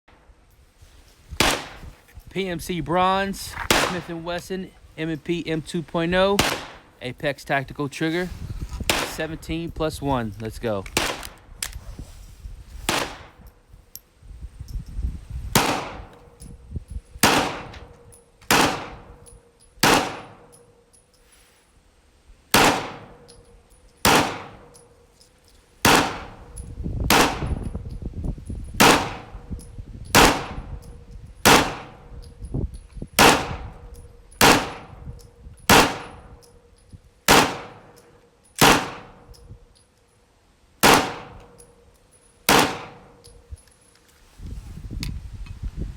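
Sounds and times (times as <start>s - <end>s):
pistol shots: 1.4s - 1.8s, 3.7s - 4.3s, 6.4s - 7.0s, 8.9s - 9.4s, 10.9s - 11.4s, 12.9s - 13.4s, 15.5s - 16.4s, 17.2s - 19.2s, 19.8s - 20.6s, 22.5s - 23.3s, 24.0s - 24.8s, 25.8s - 27.7s, 28.8s - 29.4s, 30.1s - 30.8s, 31.4s - 32.1s, 33.2s - 33.8s, 34.4s - 35.0s, 35.7s - 36.4s, 37.3s - 38.0s, 38.6s - 39.3s, 40.8s - 41.6s, 42.5s - 43.3s.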